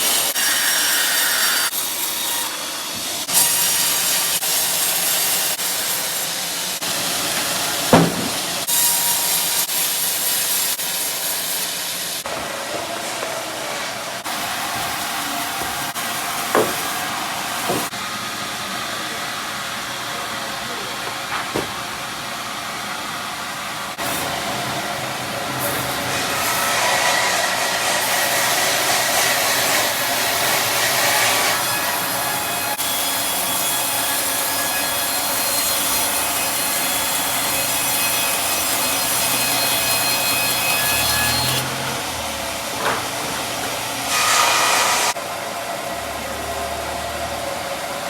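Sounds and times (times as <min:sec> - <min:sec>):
bandsaw cutting through log: 0:00.0 - 0:12.4, 0:13.9 - 0:17.9, 0:24.0 - 0:43.2
sharp knocks: 0:07.9 - 0:08.5, 0:16.5 - 0:17.0, 0:17.6 - 0:17.9.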